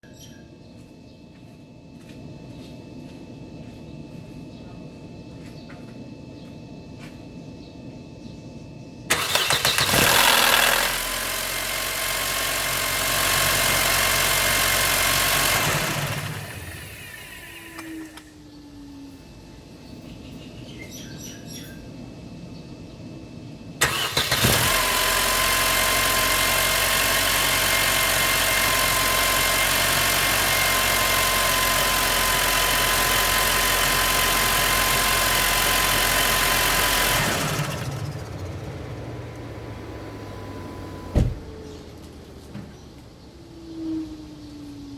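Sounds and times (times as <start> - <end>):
car engine running loudly: 9.1 - 17.3, 23.8 - 41.8.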